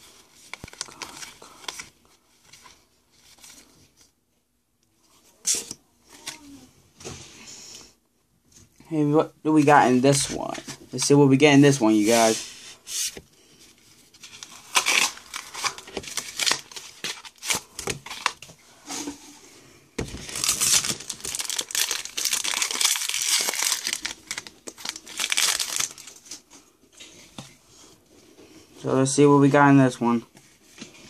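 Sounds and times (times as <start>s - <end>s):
foil pack tearing and crinkling: 14.4s - 18.4s, 20.1s - 26.1s.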